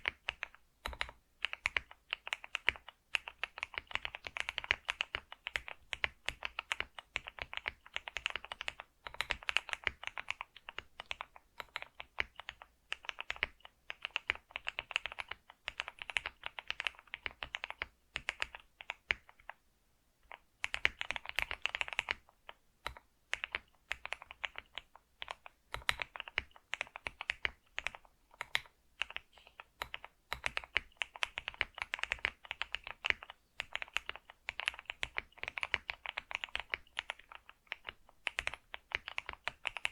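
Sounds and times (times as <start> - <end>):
computer keyboard typing: 0.0 - 19.6, 20.2 - 39.9.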